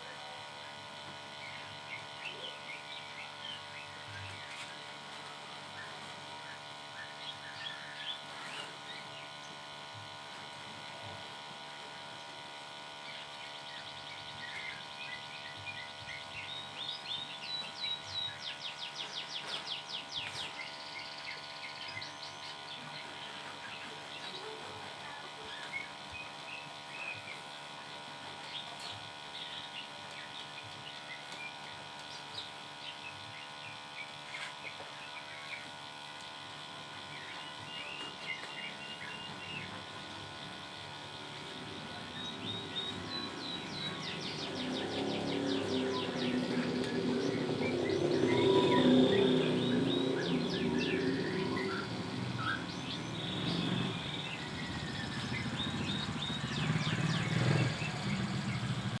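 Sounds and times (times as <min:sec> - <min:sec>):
steady background hum: 0:00.0 - 0:59.0
small songbird chirping: 0:13.0 - 0:27.6, 0:28.4 - 0:59.0.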